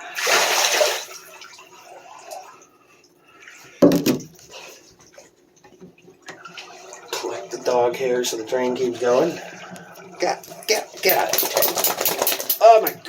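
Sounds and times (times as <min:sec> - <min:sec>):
water splashing: 0:00.0 - 0:01.8
water rushing into bathtub: 0:00.0 - 0:02.5, 0:06.4 - 0:12.8.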